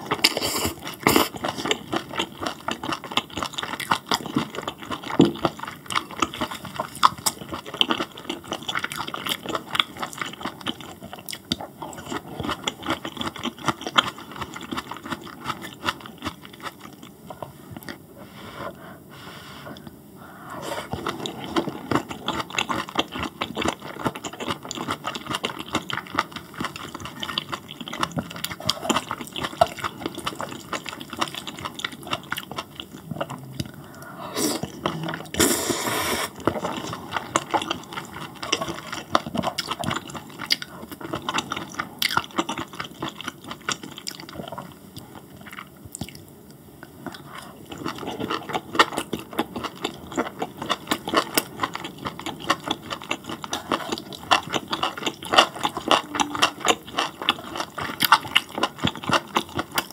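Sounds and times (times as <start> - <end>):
noodle slurp: 34.3 - 39.1
wet chewing with smacks: 36.4 - 59.9.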